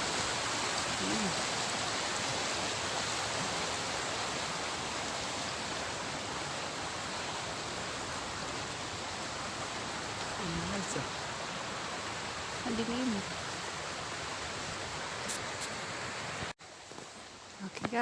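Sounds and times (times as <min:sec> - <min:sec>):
river water rushing: 0:00.0 - 0:17.6.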